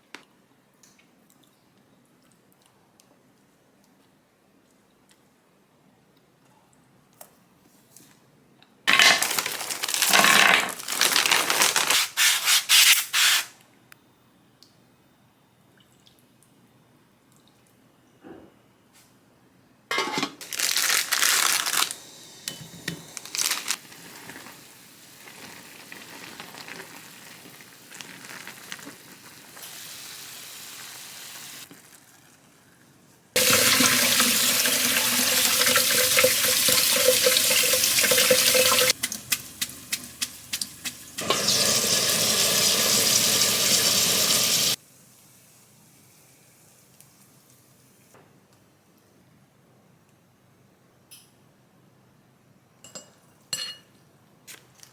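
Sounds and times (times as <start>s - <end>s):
dishes clattering: 19.9s - 20.4s
tap water running into sink: 33.4s - 44.8s.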